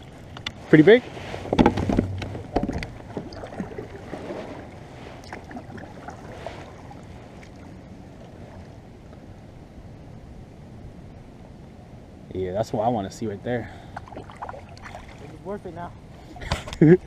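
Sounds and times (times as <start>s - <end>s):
wind and water hiss: 0.0s - 17.0s
water splashes: 1.2s - 8.7s, 13.8s - 16.6s
kayak knocks: 1.4s - 4.3s.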